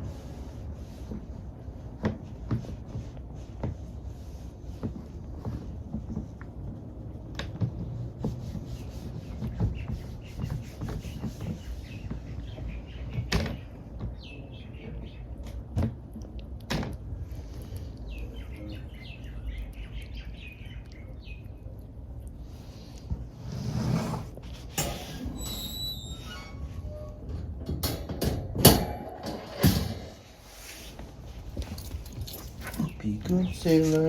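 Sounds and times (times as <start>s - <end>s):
bird chirps: 18.0s - 21.7s.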